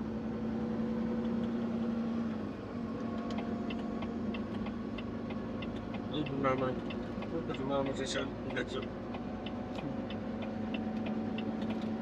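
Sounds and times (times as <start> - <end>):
truck engine hum from inside cab: 0.0 - 12.0
light evenly spaced ticks: 3.2 - 12.0.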